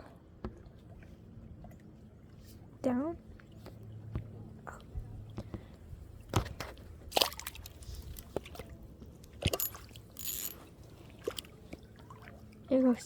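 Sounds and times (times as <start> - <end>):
sharp clicks and rustles: 9.5 - 10.6.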